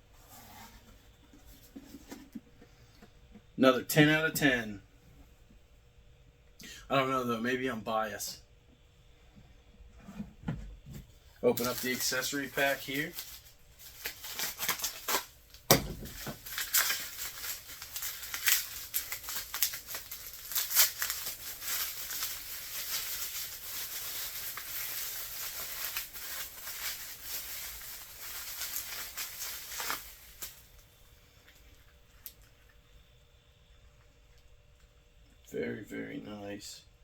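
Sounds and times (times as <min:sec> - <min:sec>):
packaging crinkling and tearing: 0:11.5 - 0:31.6.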